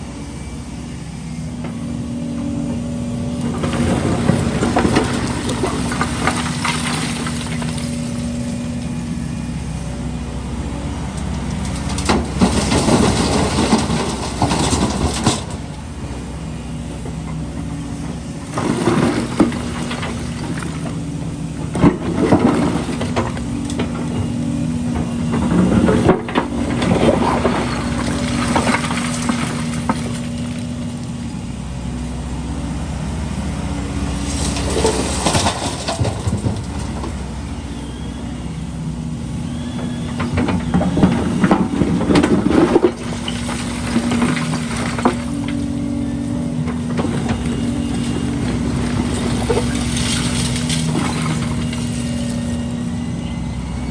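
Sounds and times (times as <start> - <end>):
excavator diesel engine running: 0.0 - 53.9
concrete rubble crunching and clattering: 3.5 - 8.2, 11.9 - 15.7, 18.4 - 21.0, 21.6 - 30.8, 34.3 - 37.2, 40.1 - 52.4.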